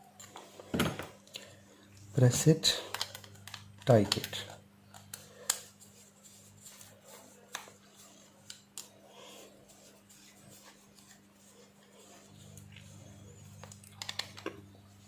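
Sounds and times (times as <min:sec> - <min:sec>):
low steady hum: 0:00.0 - 0:15.0
soft rubbing: 0:05.6 - 0:13.6.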